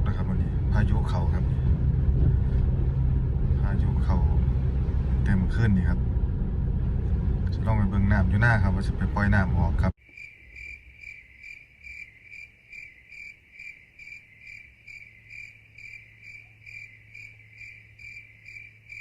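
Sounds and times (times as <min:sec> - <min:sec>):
faint low hum: 0:00.0 - 0:11.3
cricket chirping: 0:10.0 - 0:19.0.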